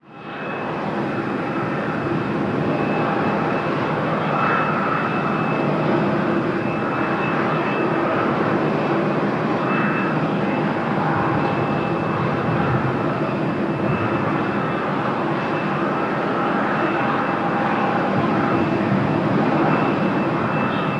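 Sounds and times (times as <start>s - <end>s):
jet engines rushing and whining: 0.0s - 20.9s.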